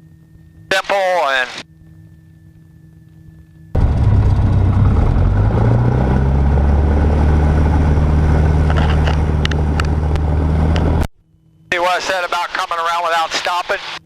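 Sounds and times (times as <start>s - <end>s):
small plane engine and propeller: 0.0s - 11.1s.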